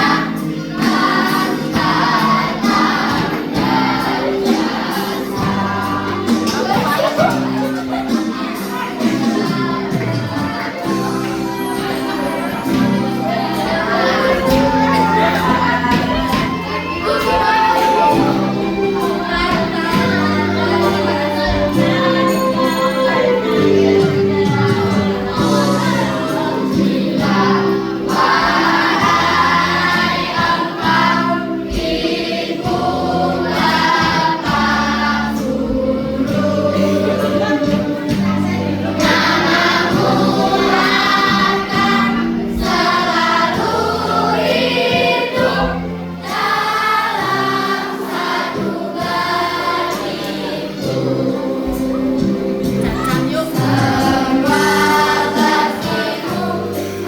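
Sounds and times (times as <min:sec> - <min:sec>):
children's choir singing: 0:00.0 - 0:57.0
held low accompaniment notes: 0:11.8 - 0:29.9.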